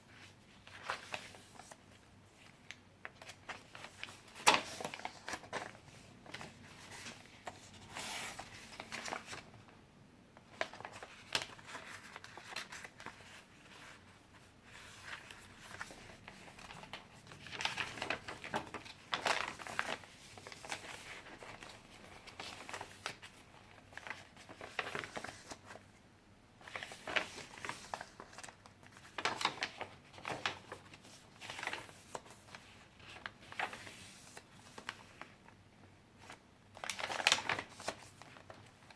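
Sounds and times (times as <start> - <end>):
paper pages rustling and crinkling: 0.0 - 9.6, 10.4 - 25.9, 26.6 - 35.6, 36.2 - 38.9.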